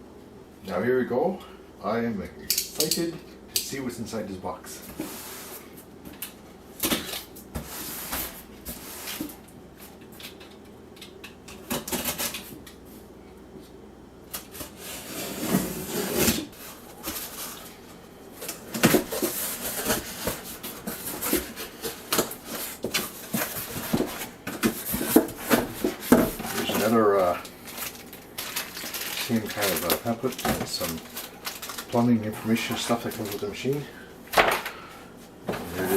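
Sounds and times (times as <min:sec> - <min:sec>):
cardboard and paper rustling: 0:14.4 - 0:33.9.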